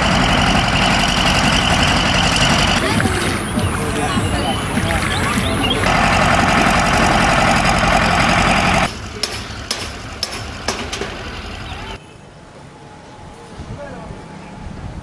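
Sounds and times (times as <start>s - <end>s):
engine running loudly: 0.0s - 12.0s.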